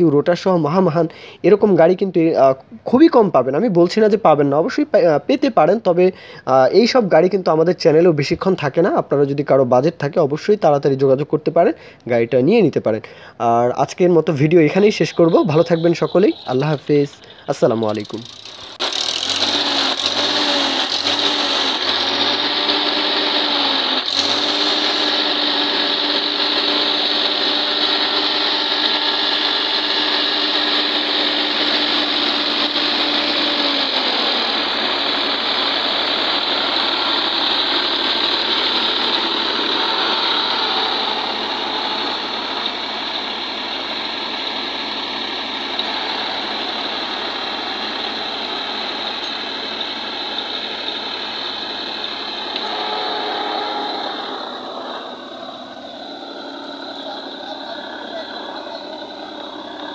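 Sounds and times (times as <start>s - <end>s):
tractor diesel engine running: 14.2s - 59.9s
pitched hum: 14.7s - 59.9s.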